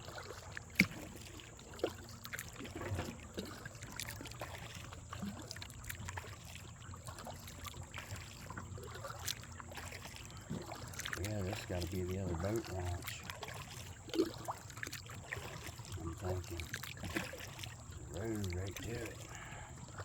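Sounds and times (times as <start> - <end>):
paddle splashing in water: 0.0 - 20.0
water dripping: 0.0 - 20.0.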